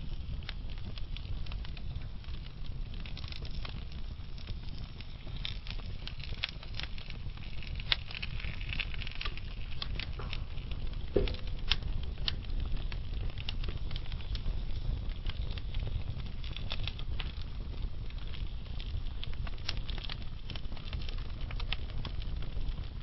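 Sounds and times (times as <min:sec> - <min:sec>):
fire flames rumbling: 0:00.0 - 0:23.0
logs crackling and popping: 0:00.0 - 0:23.0.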